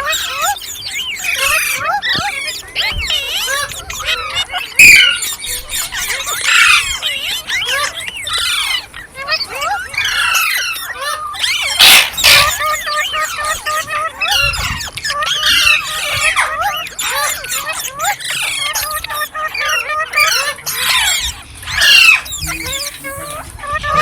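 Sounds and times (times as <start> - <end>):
parakeets chirping and squawking: 0.0 - 24.0
parakeet harsh screech: 9.6 - 24.0.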